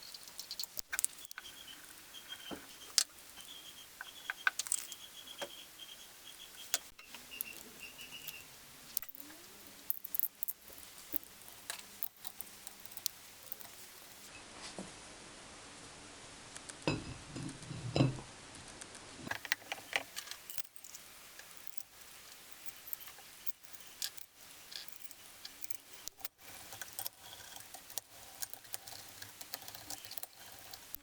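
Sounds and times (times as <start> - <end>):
metallic clicks and clinks of tools: 19.3 - 31.0.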